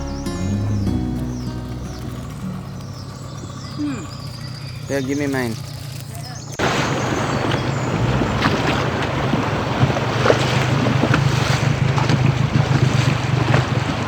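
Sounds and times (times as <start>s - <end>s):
boat motor humming: 0.0s - 5.9s, 7.4s - 14.0s
wind buffeting microphone: 0.8s - 14.0s
water splashes: 2.1s - 14.0s
rushing water: 6.6s - 14.0s.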